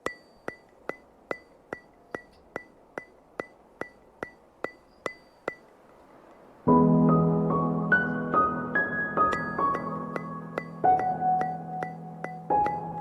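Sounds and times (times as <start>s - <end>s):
sharp ringing ticks: 0.0s - 6.5s, 9.2s - 13.0s.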